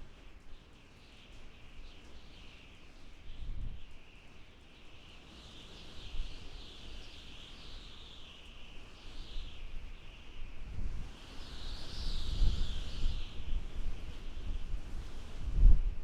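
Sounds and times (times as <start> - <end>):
wind howling and whistling: 5.2 - 16.0
low gusty wind rumble: 9.4 - 16.0.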